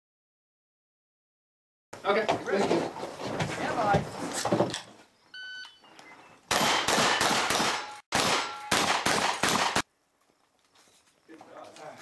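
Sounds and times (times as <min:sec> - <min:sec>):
shot timer beep: 0:05.4 - 0:05.9
shotgun blasts: 0:06.5 - 0:09.9.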